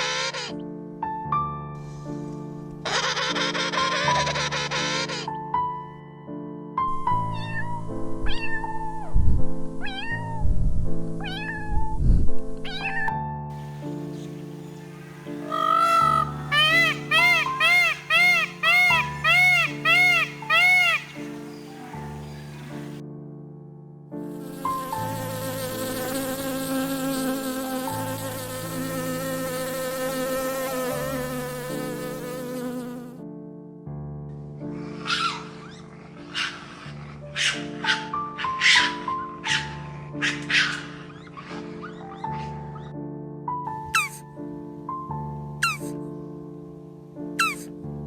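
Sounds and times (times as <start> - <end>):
cat meowing: 7.4 - 8.8, 9.8 - 10.4, 11.2 - 11.9
flying insect buzzing: 13.6 - 23.0, 24.3 - 33.2.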